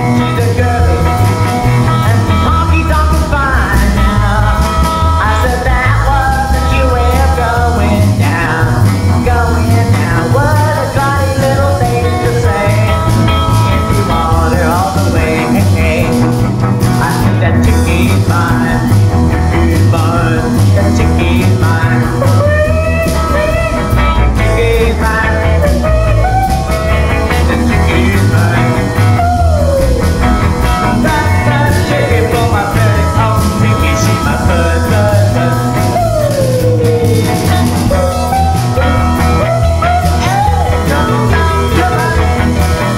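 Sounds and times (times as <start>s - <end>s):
rock band playing: 0.0s - 42.9s
sliding lead guitar line: 0.0s - 42.9s.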